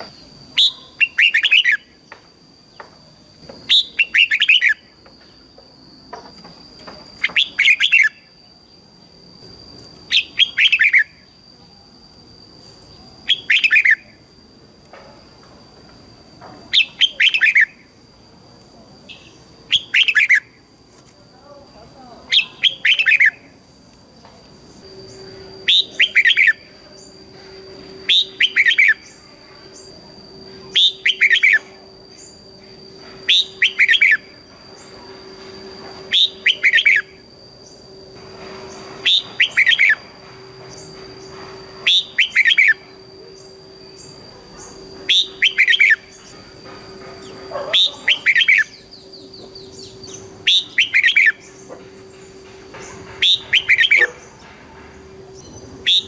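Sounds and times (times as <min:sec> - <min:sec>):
faint steady high tones: 0:00.0 - 0:56.0
bird whistled song: 0:00.1 - 0:02.2, 0:03.6 - 0:05.0, 0:07.1 - 0:08.4, 0:10.1 - 0:11.4, 0:12.8 - 0:14.3, 0:16.7 - 0:18.0, 0:19.1 - 0:20.7, 0:22.3 - 0:23.6, 0:24.9 - 0:54.5, 0:55.3 - 0:56.0.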